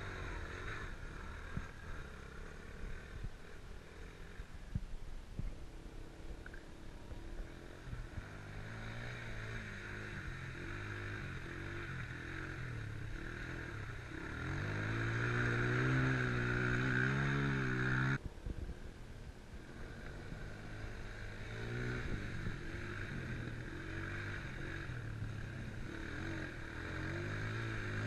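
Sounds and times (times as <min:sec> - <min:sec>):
motorcycle engine revving: 0:00.0 - 0:04.8, 0:05.8 - 0:18.2, 0:19.6 - 0:28.0.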